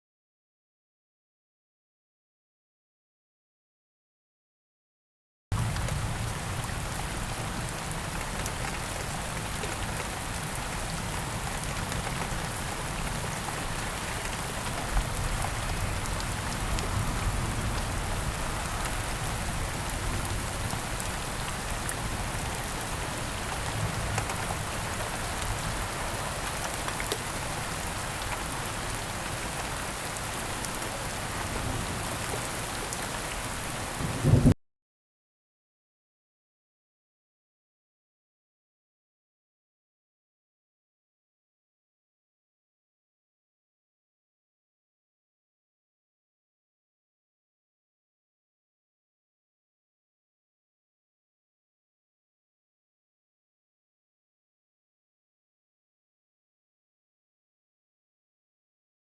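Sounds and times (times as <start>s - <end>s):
steady rain hiss: 5.6s - 34.6s.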